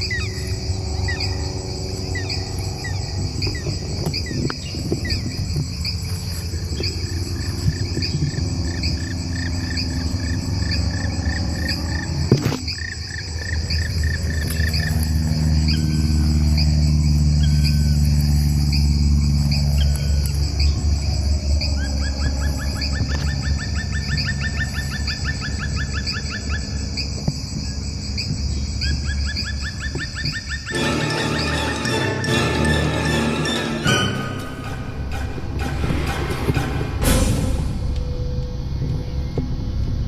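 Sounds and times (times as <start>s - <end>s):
crickets chirping: 0.0s - 40.0s
low steady hum: 30.8s - 40.0s.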